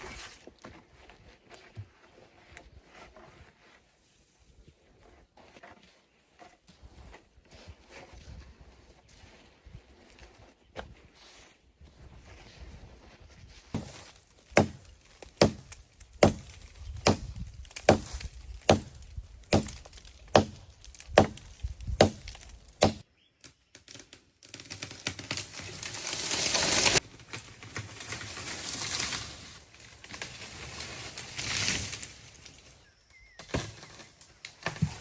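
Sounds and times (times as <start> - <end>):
axe chopping wood: 13.8 - 23.1.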